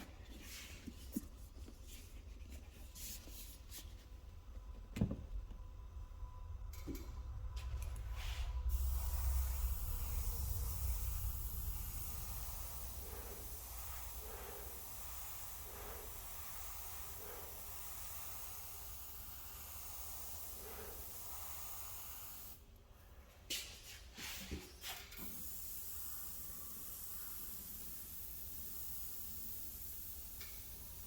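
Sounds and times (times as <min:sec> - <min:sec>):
paint sprayer hissing: 0:08.2 - 0:22.6, 0:24.8 - 0:31.0.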